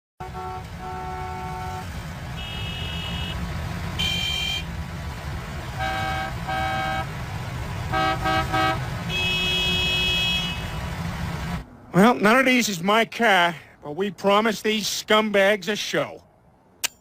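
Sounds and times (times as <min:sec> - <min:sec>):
car horns honking: 0:00.2 - 0:04.8, 0:05.5 - 0:11.6.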